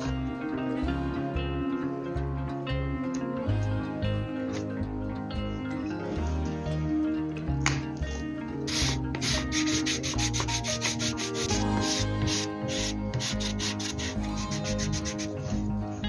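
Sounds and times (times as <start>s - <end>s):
soft instrumental music: 0.0s - 16.0s
art tool rubbing on paper: 8.7s - 15.6s.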